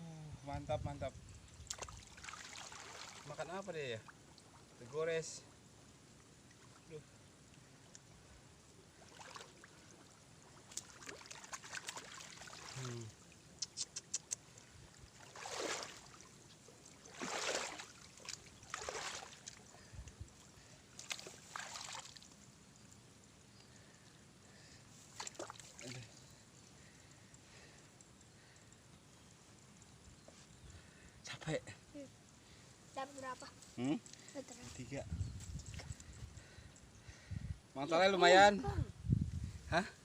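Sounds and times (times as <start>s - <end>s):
muddy water splashing: 1.6s - 4.9s, 8.9s - 22.5s, 24.9s - 27.6s.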